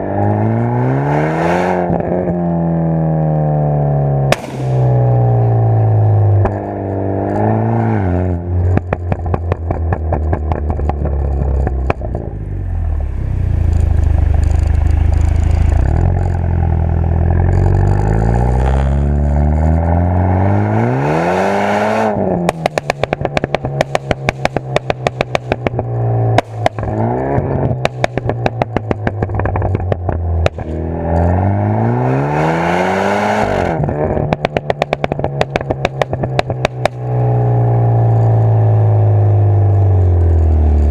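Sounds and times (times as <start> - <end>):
car engine revving: 4.0 - 40.9
exhaust crackling and popping: 4.3 - 7.6, 8.4 - 20.2, 22.1 - 31.4, 33.7 - 40.9.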